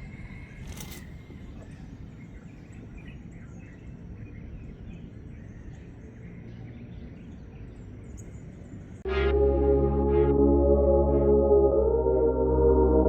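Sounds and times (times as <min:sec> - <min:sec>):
small birds chirping: 0:01.2 - 0:09.0.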